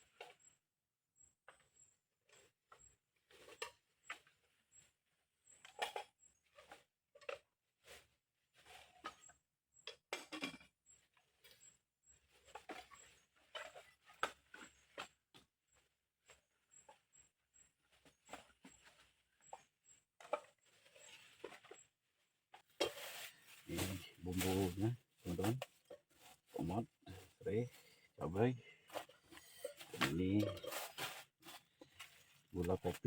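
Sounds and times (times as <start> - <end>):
cooking gear rustling and clinking: 22.5 - 33.0.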